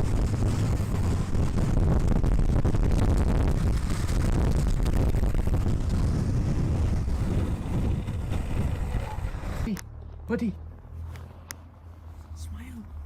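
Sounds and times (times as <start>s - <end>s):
wind buffeting microphone: 0.0s - 9.7s
low continuous rumble: 0.0s - 13.0s.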